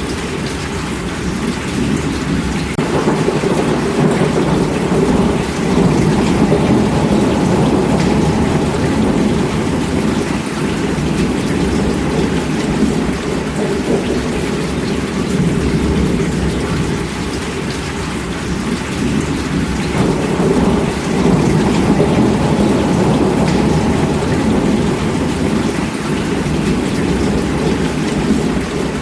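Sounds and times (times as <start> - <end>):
heavy rain: 0.0 - 29.0
low rumble of thunder: 1.3 - 29.0.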